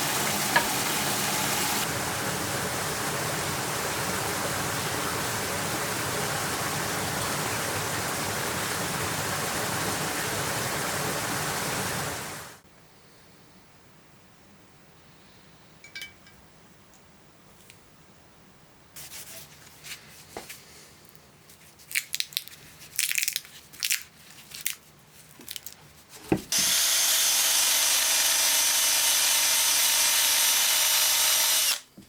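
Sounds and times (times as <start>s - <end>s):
power tool running: 26.5s - 31.9s.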